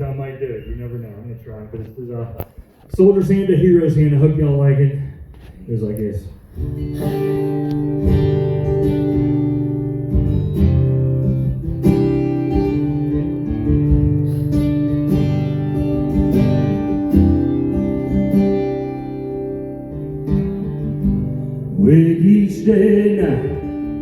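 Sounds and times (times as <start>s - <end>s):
acoustic guitar strumming chords: 6.5s - 24.0s.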